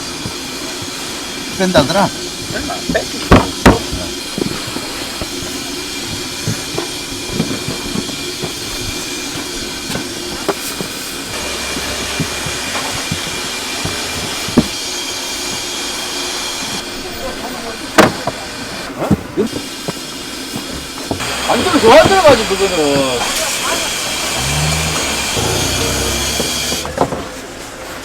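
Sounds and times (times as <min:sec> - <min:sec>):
kitchen fryer hiss and hum: 0:00.0 - 0:24.9
sharp knocks and clatter: 0:02.4 - 0:14.8, 0:20.6 - 0:27.2.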